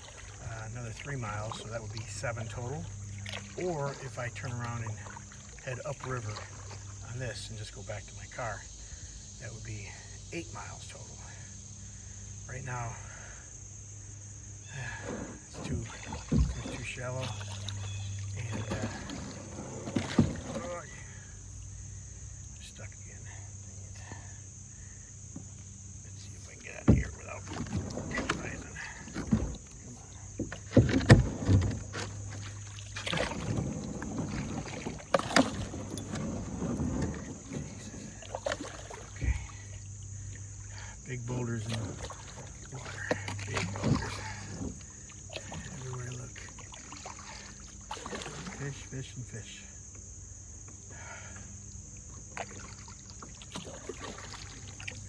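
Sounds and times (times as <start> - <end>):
water around a kayak: 0.0 - 55.0
hull scraping on rocks: 14.9 - 21.5, 26.2 - 40.3, 41.1 - 46.4
kayak hull knocking on rocks: 15.1 - 20.9, 25.2 - 40.8.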